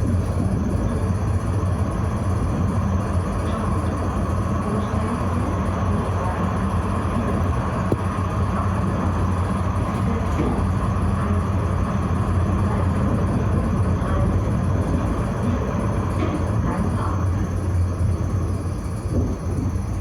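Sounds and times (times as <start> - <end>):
tram rumbling on track: 0.0 - 20.0.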